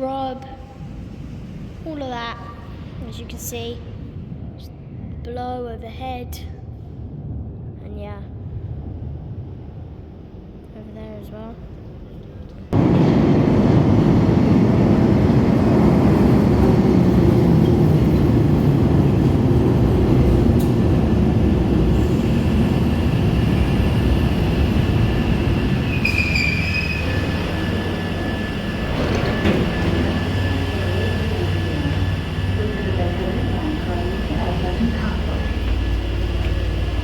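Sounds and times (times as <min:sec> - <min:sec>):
train rumbling into platform: 0:00.0 - 0:37.0
wheel or brake squeal: 0:25.9 - 0:27.7.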